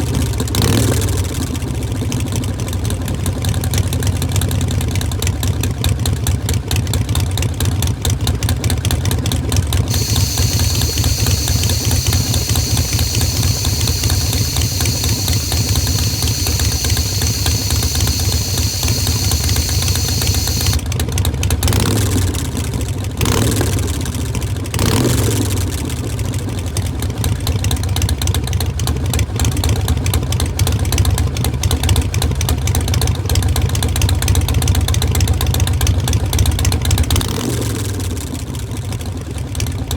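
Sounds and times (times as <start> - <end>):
motorcycle engine idling: 9.9 - 20.8
throttle blips: 9.9 - 20.8.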